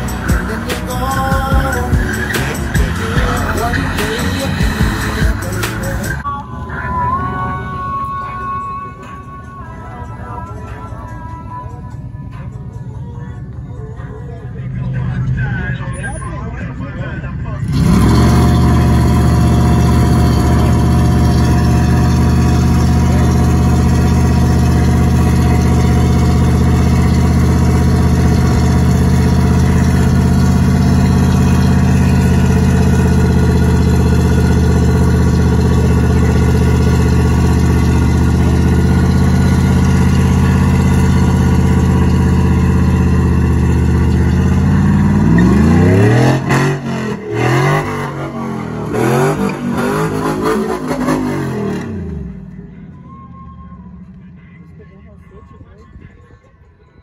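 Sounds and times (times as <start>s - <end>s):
engine revving high: 0.0s - 6.2s, 17.6s - 52.6s
tyres spinning on pavement: 17.8s - 46.5s.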